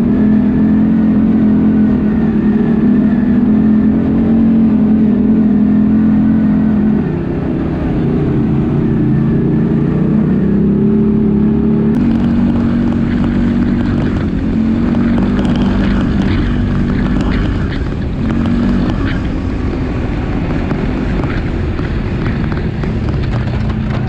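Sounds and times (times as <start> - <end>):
atv engine running: 0.0 - 24.0
rough crackling with ticks: 12.0 - 24.0.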